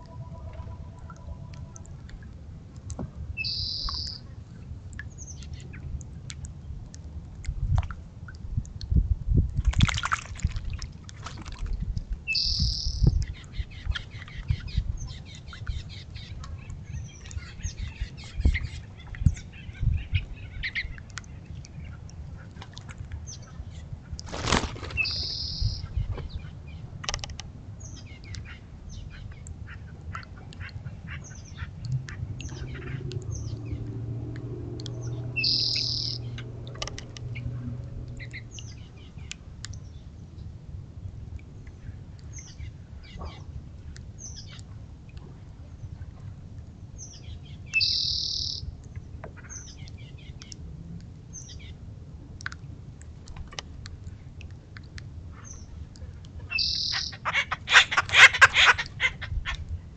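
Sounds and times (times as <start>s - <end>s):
soft knocks of birds landing: 24.2s - 25.0s
birds wings flapping: 24.3s - 25.1s.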